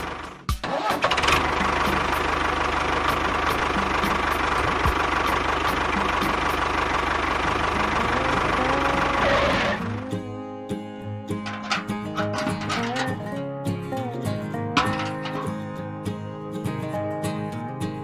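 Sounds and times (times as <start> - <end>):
small engine running: 0.0 - 10.2
plucked guitar music: 0.0 - 18.0.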